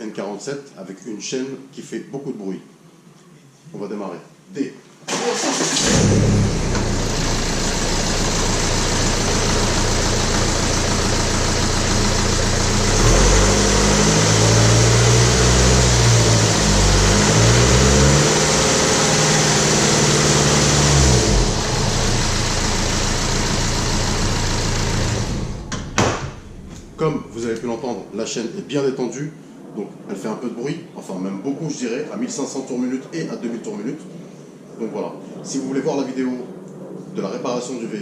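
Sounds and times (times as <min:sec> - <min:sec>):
diesel engine idling and revving: 0:05.6 - 0:28.1.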